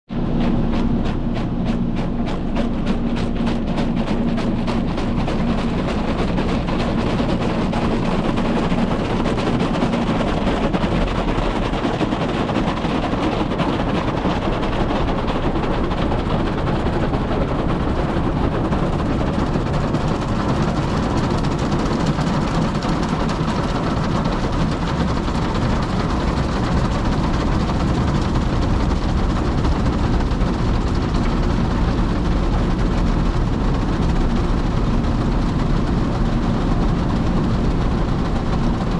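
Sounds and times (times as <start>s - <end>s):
car wash machinery: 0.1s - 38.9s.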